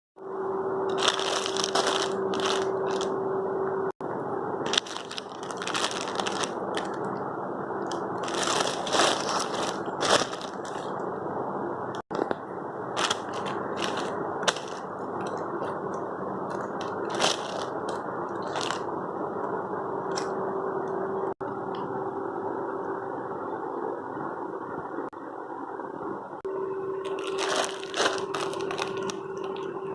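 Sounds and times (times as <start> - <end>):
faint hum: 0.2 - 29.9
plastic packaging crinkling: 0.9 - 3.1, 4.7 - 7.1, 7.8 - 11.0, 13.0 - 15.8, 16.5 - 18.9, 27.0 - 29.7.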